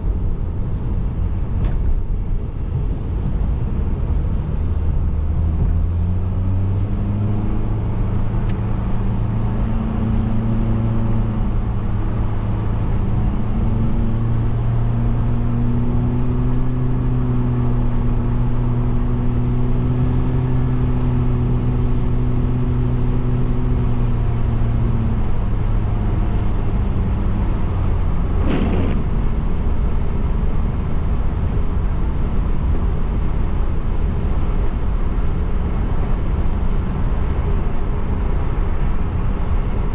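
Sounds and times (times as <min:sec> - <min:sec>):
car road and engine noise: 0:00.0 - 0:39.9
short whoosh: 0:28.0 - 0:30.3.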